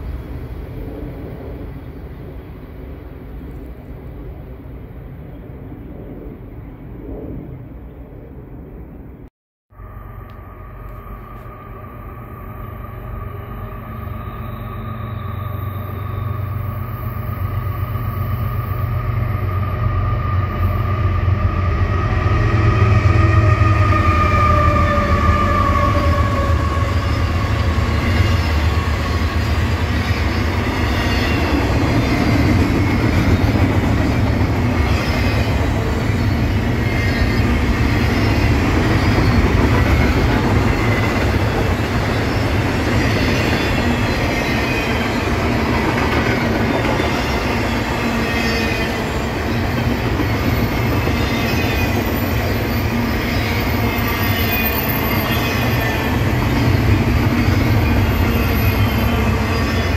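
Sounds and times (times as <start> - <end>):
diesel locomotive engine rumble: 0.0 - 59.9
train wheels clattering on rails: 25.4 - 59.9.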